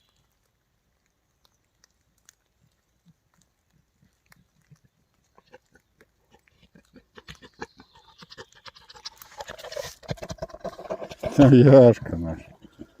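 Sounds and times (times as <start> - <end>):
wild boar grunting: 4.0 - 13.0.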